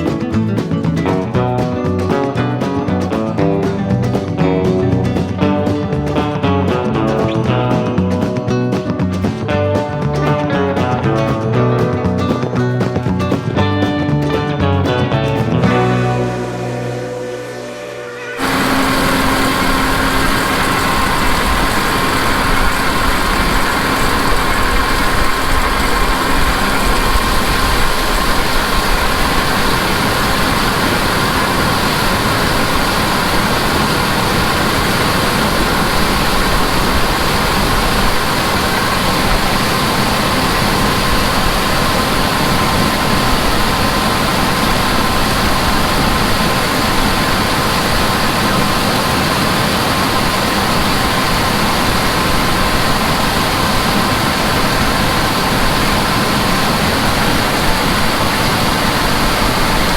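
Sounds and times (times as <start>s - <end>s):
heavy diesel engine running: 0.0s - 59.9s
constant high whine: 15.4s - 59.9s.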